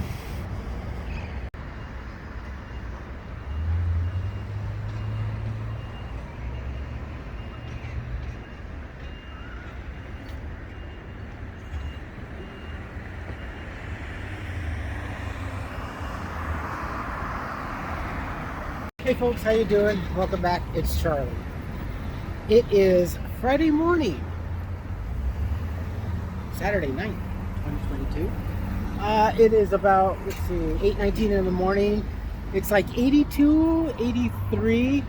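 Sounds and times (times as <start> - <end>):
vehicle reversing alarm beeping: 1.6 - 18.0, 25.5 - 35.0.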